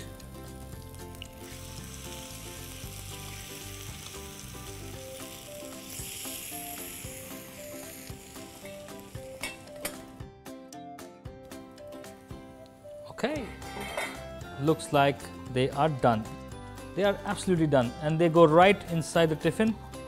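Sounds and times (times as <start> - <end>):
batter balls sizzling in ghee: 0.0 - 10.1, 11.6 - 14.6.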